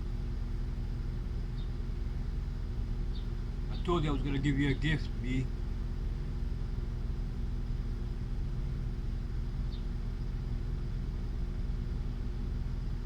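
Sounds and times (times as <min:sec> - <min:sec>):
vehicle engine rumble and hum: 0:00.0 - 0:13.0.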